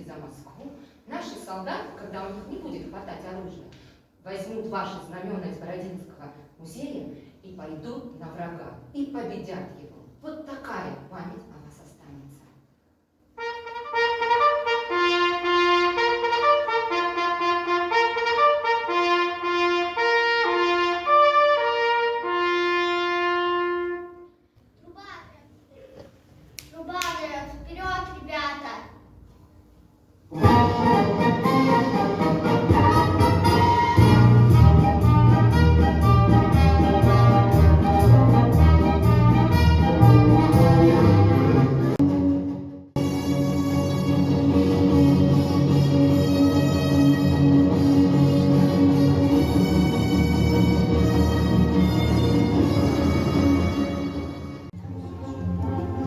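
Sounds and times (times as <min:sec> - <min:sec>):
orchestral march music with brass: 0:13.4 - 0:24.3, 0:30.3 - 0:54.8
trumpet playing martial tune: 0:13.4 - 0:24.4, 0:30.4 - 0:54.7.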